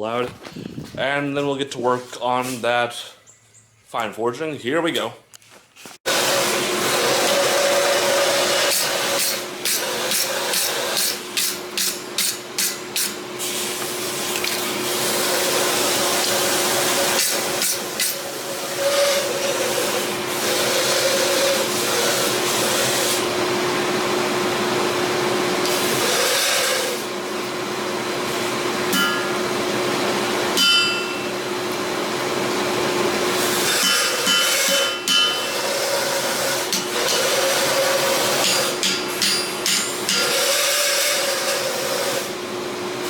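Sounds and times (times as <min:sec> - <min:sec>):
forge hissing and humming: 0:06.1 - 0:43.0.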